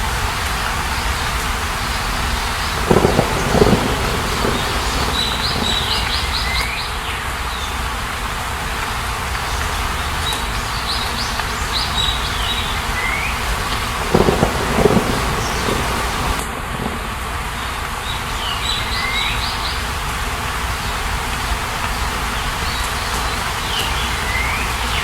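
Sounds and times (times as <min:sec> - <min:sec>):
rushing outdoor background: 0:00.0 - 0:25.0
bird chirping: 0:02.6 - 0:06.9, 0:14.0 - 0:16.4.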